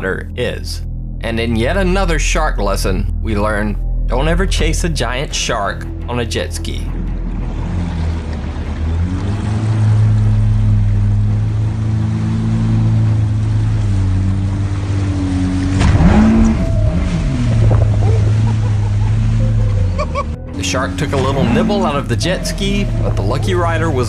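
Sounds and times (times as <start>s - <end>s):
jet ski engine running: 6.9s - 24.0s.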